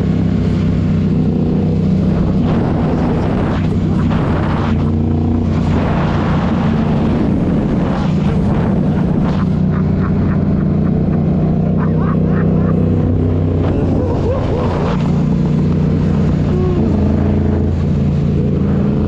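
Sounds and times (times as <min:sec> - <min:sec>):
motorcycle engine droning: 0:00.0 - 0:19.0.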